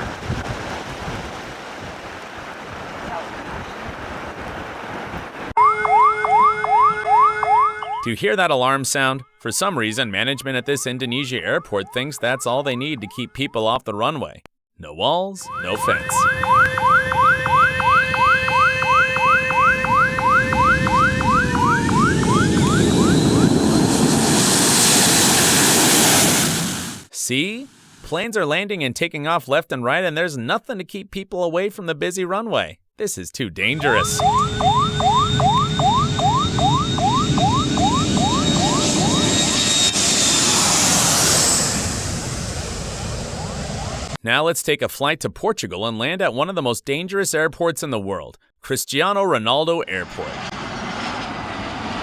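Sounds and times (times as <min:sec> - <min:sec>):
warning siren whooping: 0:05.6 - 0:08.1, 0:10.2 - 0:13.5, 0:15.4 - 0:24.4, 0:33.7 - 0:44.2.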